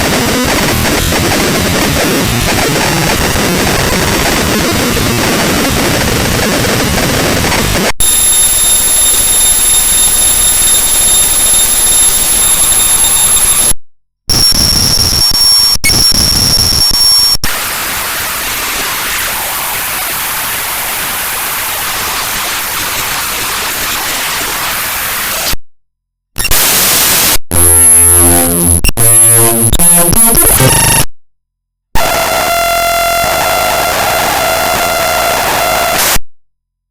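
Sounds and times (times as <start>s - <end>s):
harsh digital noise: 0.0s - 13.7s, 14.3s - 25.6s, 26.4s - 31.1s
stuttering buzzes: 27.5s - 31.0s
high whining tones: 27.6s - 31.0s.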